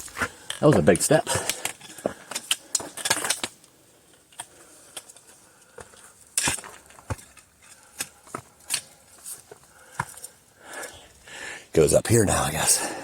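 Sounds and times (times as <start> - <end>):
footsteps on rock: 0.0 - 3.1, 5.7 - 10.4.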